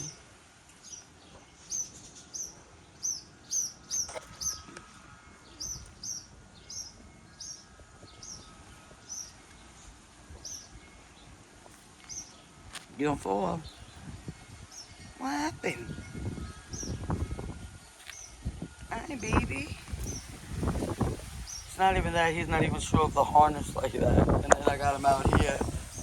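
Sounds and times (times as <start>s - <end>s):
outdoor background noise: 0.0s - 26.0s
bird short high chirp: 1.7s - 4.8s.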